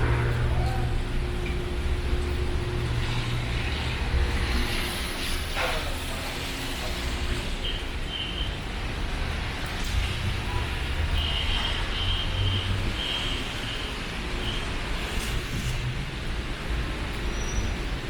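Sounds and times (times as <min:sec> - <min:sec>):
vehicle engine humming: 0:00.0 - 0:06.4
busy market noise: 0:00.0 - 0:18.0.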